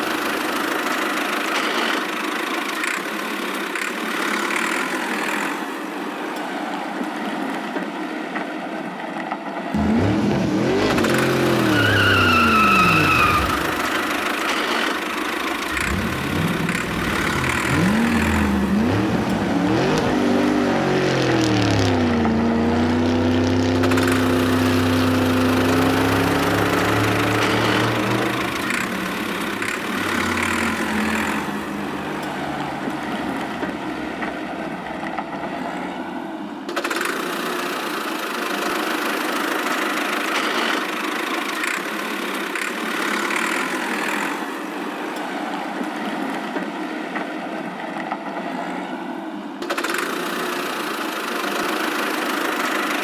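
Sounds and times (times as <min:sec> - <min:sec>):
rough noisy engine: 0:09.6 - 0:53.0
engine running: 0:09.8 - 0:36.8.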